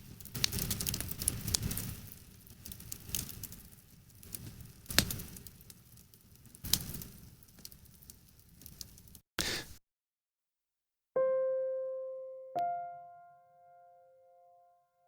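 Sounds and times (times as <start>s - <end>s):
campfire crackling and popping: 0.0s - 9.2s
low rumble of fire: 0.0s - 9.2s.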